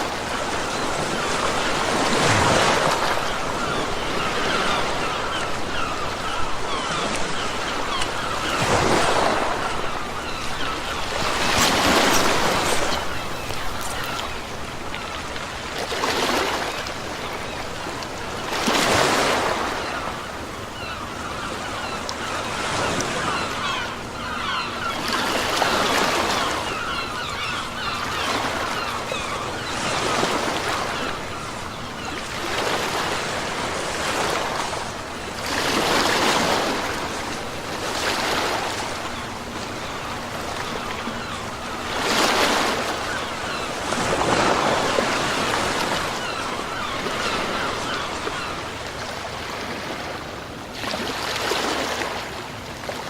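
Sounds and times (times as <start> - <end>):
sea waves breaking on shore: 0.0 - 53.0.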